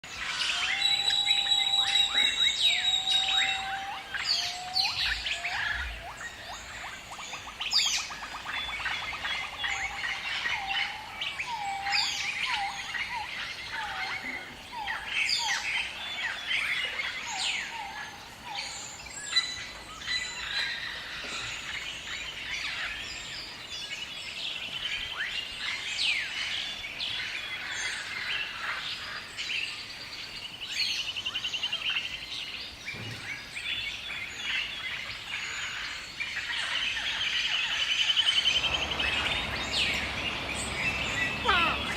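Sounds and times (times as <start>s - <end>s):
bird chorus: 0.0s - 41.9s.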